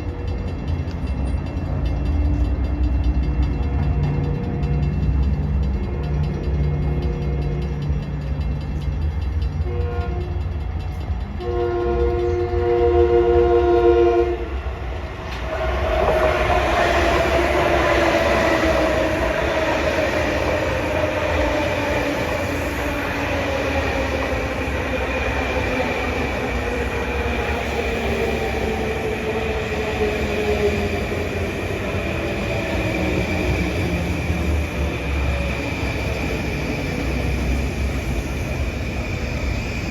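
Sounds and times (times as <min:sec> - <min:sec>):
train wheels rumbling on rail: 0:00.0 - 0:39.9
train horn blasts: 0:09.6 - 0:10.5, 0:11.4 - 0:14.7.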